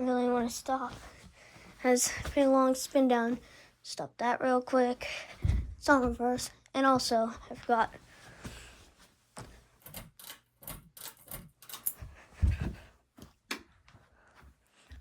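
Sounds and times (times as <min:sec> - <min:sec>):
sharp clicks and light knocks: 0:09.4 - 0:12.0.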